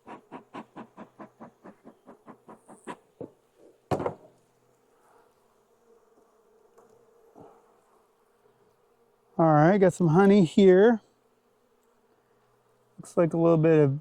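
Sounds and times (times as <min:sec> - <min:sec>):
bellows puffing: 0:00.0 - 0:03.7.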